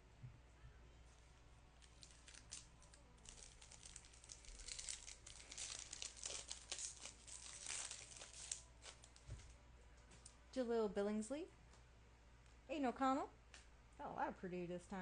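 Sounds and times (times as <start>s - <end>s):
wrapper crinkling and tearing: 1.8s - 9.2s.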